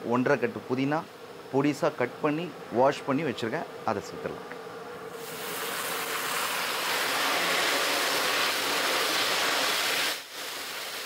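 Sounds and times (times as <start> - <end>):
herbs sizzling in hot oil: 5.1 - 11.0.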